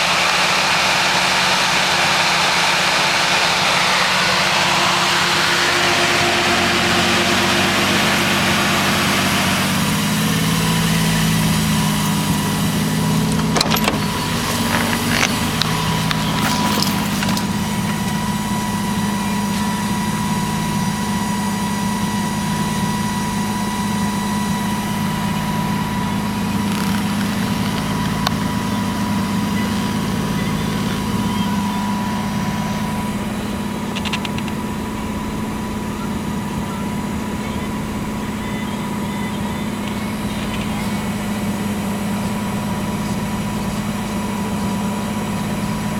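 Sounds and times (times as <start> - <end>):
car engine idling: 0.0 - 45.9
sharp clicks: 33.9 - 34.6.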